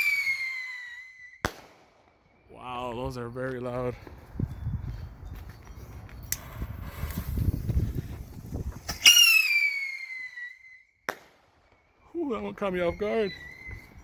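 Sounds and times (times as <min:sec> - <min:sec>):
bottle rocket whistle: 0:00.0 - 0:01.6, 0:08.8 - 0:14.0
rocket sharp bang: 0:01.4 - 0:02.1.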